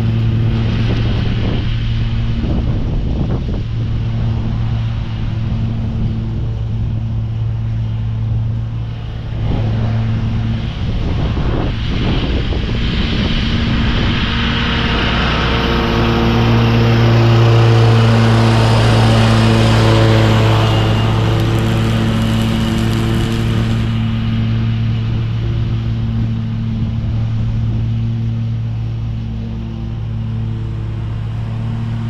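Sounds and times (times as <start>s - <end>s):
lawn mower engine running: 0.0s - 32.0s
mower blades mulching leaves: 12.6s - 32.0s
hiss: 17.5s - 24.6s.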